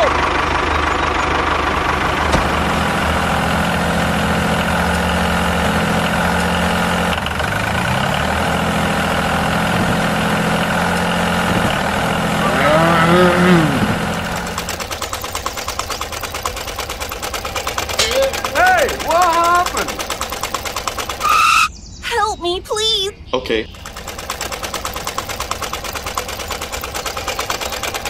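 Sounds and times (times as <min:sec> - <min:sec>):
small engine chugging: 0:00.0 - 0:21.7, 0:23.7 - 0:28.0
diesel tractor engine running: 0:00.0 - 0:28.0
voice-like call: 0:21.2 - 0:23.8.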